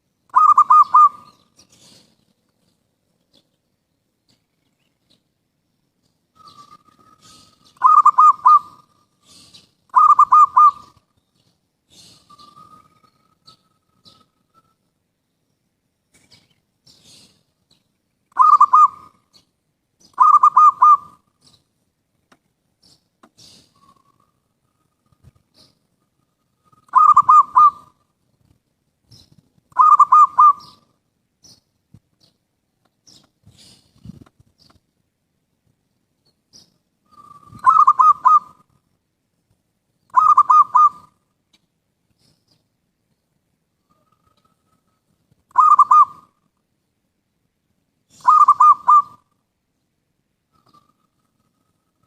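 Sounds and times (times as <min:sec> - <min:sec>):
faint high bird chirps: 0:00.0 - 0:21.8, 0:22.8 - 0:34.8, 0:36.2 - 0:39.0, 0:39.9 - 0:41.4, 0:42.2 - 0:46.6, 0:48.0 - 0:52.0
dove cooing: 0:00.3 - 0:02.1, 0:06.4 - 0:11.0, 0:18.3 - 0:19.3, 0:20.1 - 0:21.3, 0:26.7 - 0:28.0, 0:29.7 - 0:30.8, 0:37.1 - 0:38.7, 0:40.1 - 0:41.2, 0:43.9 - 0:46.4, 0:48.1 - 0:49.4.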